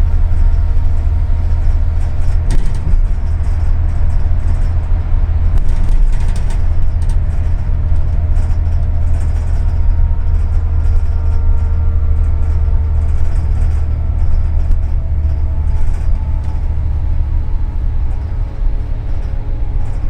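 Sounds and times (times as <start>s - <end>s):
bus engine and road rumble: 0.0s - 20.0s
faint whine: 0.0s - 20.0s.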